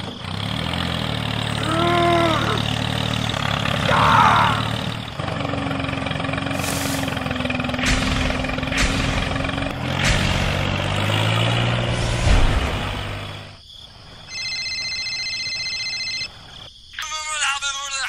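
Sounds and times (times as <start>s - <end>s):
engine rumbling: 0.0s - 16.7s
knocks: 7.7s - 11.3s
mobile phone ringing tone: 14.3s - 16.3s.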